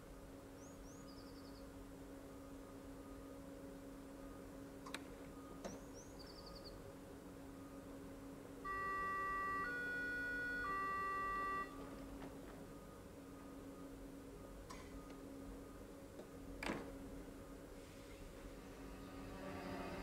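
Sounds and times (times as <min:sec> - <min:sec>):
train electrical hum: 0:00.0 - 0:20.0
three-note electronic signal: 0:08.6 - 0:11.8.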